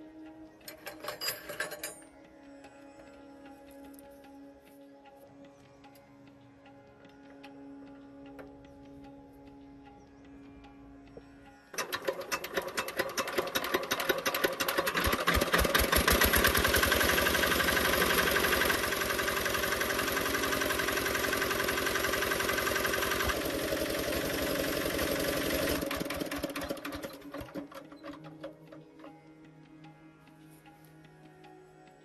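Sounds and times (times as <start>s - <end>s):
tractor diesel engine running: 11.8s - 28.6s.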